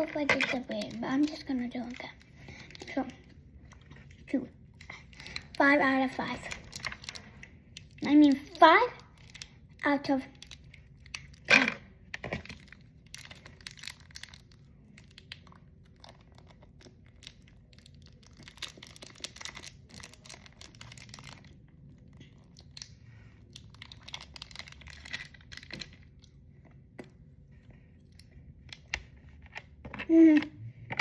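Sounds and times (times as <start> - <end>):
packaging crinkles and clicks: 6.2 - 26.3
toy packaging torn open: 10.3 - 26.2.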